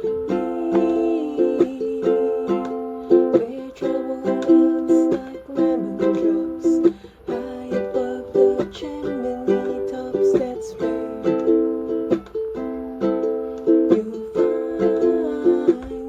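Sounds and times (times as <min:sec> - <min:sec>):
ukulele strumming chords: 0:00.0 - 0:16.0.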